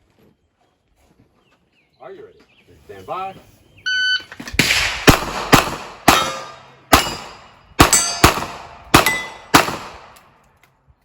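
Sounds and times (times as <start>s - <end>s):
steel target ringing: 6.1s - 8.4s, 9.0s - 9.5s.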